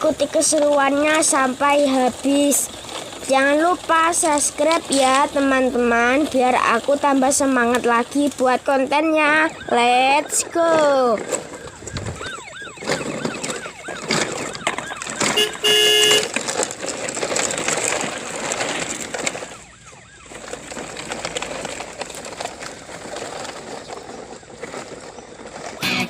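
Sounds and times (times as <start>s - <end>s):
toy vehicles rolling on track: 0.0s - 26.0s
toy police siren wailing: 8.9s - 16.5s, 18.5s - 21.0s
toy horn honk: 15.3s - 16.3s.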